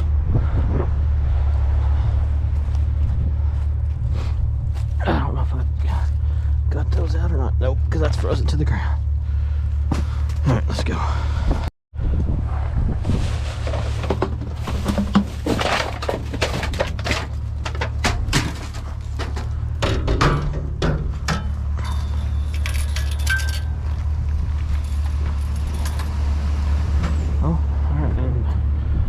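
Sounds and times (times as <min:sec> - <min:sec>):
steady low hum: 0:00.0 - 0:26.1
hard objects clinking and rattling: 0:21.2 - 0:24.0.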